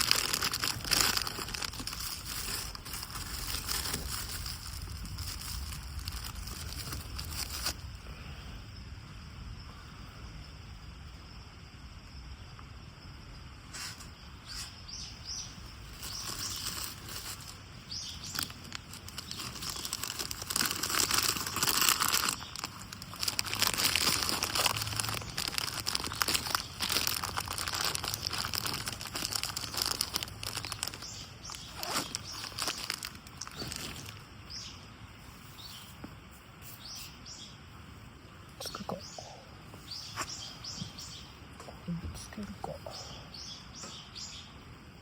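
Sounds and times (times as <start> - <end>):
crinkling and rustling: 0.0 - 7.9, 15.8 - 34.4
bird chirps: 14.4 - 16.7, 17.8 - 18.6, 38.6 - 41.4, 42.3 - 44.6.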